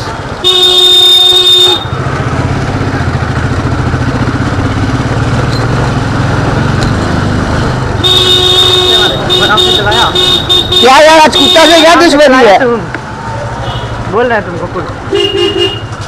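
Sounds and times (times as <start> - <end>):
motorcycle engine running: 0.0 - 12.0
horn sounding: 0.4 - 2.0, 8.0 - 12.1, 15.1 - 15.9.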